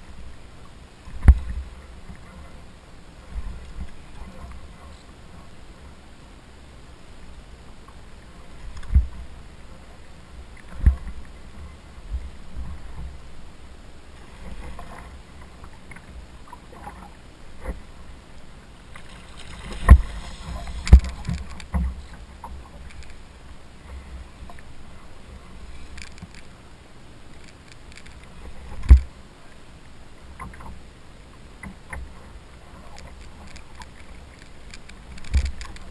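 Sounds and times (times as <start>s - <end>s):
knocks and thumps on a kayak: 1.1s - 1.7s, 8.8s - 9.2s, 10.7s - 11.2s, 19.4s - 22.7s, 35.2s - 35.9s.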